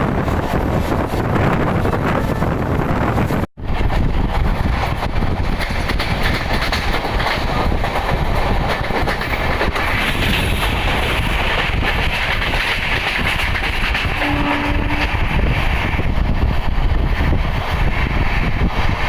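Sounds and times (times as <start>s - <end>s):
passenger train rumbling on track: 0.0s - 19.0s
wheels clacking over rail joints: 4.3s - 15.0s.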